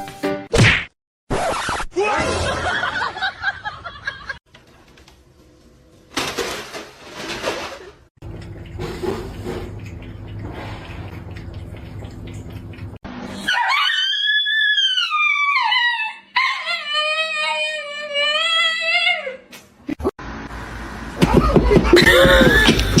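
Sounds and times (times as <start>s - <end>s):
dog howling: 13.4s - 19.3s.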